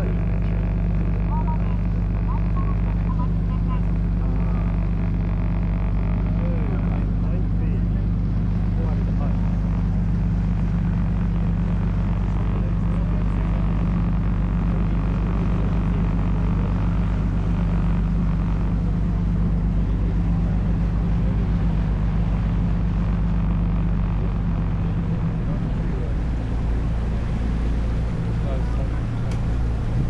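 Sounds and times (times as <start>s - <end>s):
boat engine humming: 0.0s - 30.0s.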